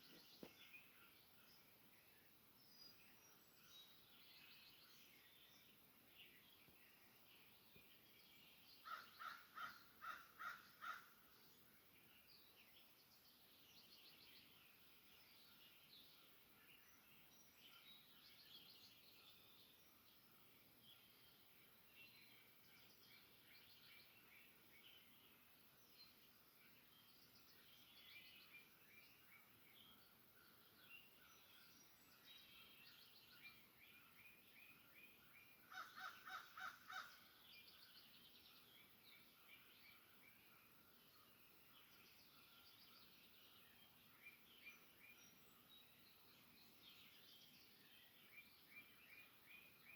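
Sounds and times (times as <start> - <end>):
birds chirping: 0.0 - 49.9
soft background hiss: 0.0 - 49.9
louder lower bird calls: 8.8 - 11.2, 35.6 - 37.3.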